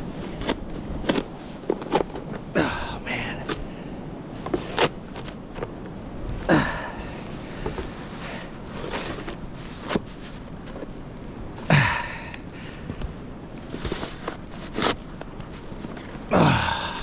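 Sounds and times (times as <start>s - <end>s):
man grunting: 2.6s - 3.4s, 6.5s - 7.1s, 11.7s - 12.3s, 16.3s - 17.0s
snow shovel scraping: 7.1s - 10.8s, 13.7s - 16.0s.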